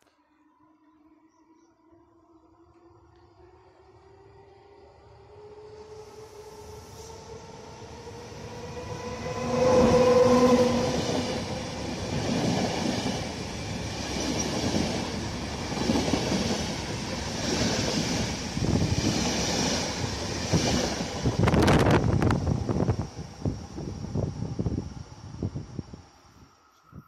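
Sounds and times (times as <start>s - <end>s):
electric locomotive whine: 0.0s - 27.0s
train wheels clattering over rails: 10.7s - 21.8s.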